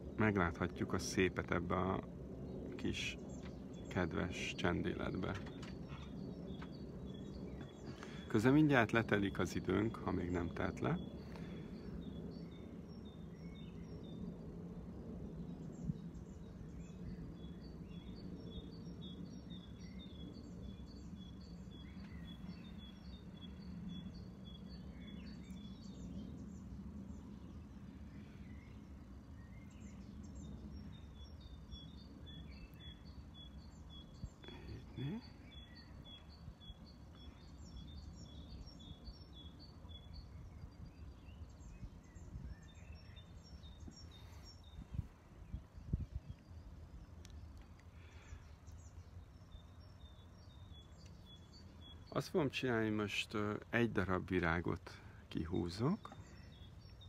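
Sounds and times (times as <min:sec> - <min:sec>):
low rising whine: 0:00.0 - 0:35.2
low outdoor background hum: 0:00.0 - 0:57.0
small bird chirping: 0:02.5 - 0:57.0.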